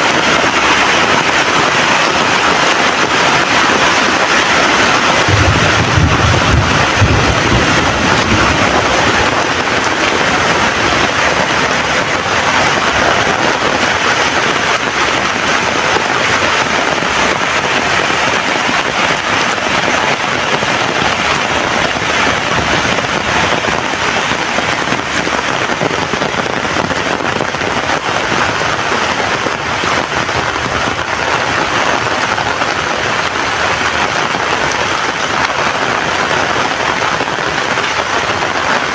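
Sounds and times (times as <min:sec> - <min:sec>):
heavy rain: 0:00.0 - 0:38.9
low rumble: 0:05.3 - 0:13.0.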